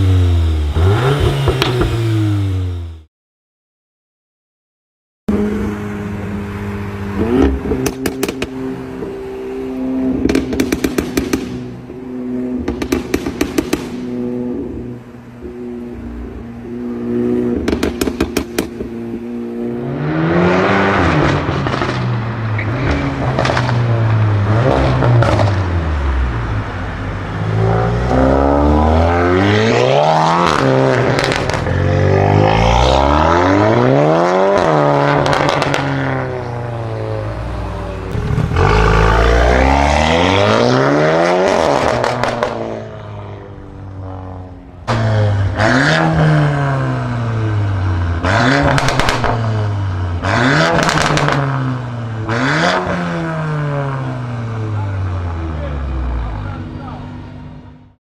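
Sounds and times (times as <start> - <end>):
car engine accelerating hard: 0.0 - 3.1, 16.9 - 57.2
exhaust crackles: 35.0 - 57.0.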